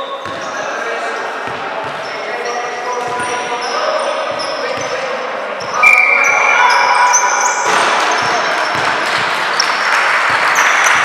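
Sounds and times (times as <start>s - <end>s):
sneakers squeaking on court: 0.0s - 11.0s
basketball bouncing: 7.4s - 9.7s.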